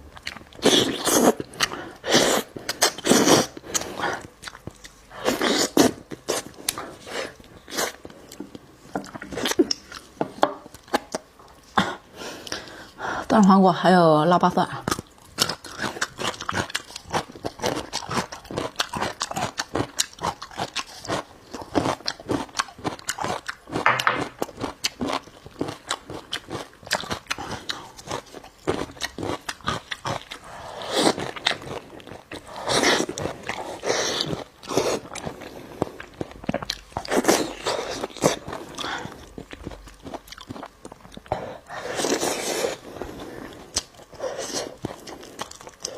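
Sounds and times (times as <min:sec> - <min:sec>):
person chewing and biting: 0:00.1 - 0:12.7, 0:14.9 - 0:45.9
food crunching: 0:14.8 - 0:45.9.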